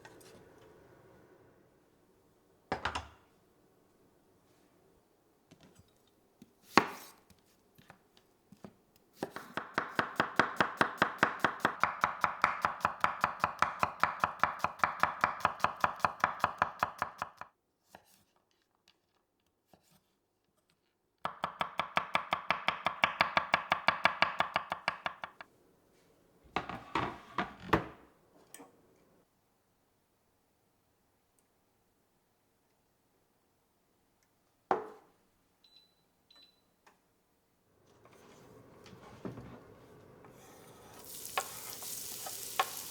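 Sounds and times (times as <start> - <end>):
knife chopping on cutting board: 6.7 - 7.2, 9.2 - 17.5, 21.3 - 25.3.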